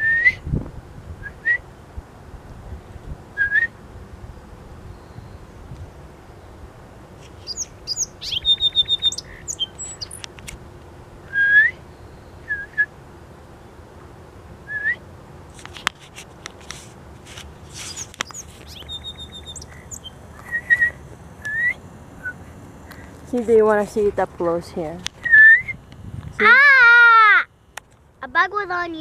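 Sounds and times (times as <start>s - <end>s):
rising whistled bird notes: 0.0s - 0.4s, 1.2s - 1.6s, 3.4s - 3.8s, 7.4s - 10.2s, 11.3s - 12.9s, 14.6s - 15.0s, 17.9s - 22.4s, 25.2s - 25.8s
songbird rattling trills: 7.4s - 10.4s, 17.6s - 22.3s
clicks and rustling: 15.5s - 19.0s.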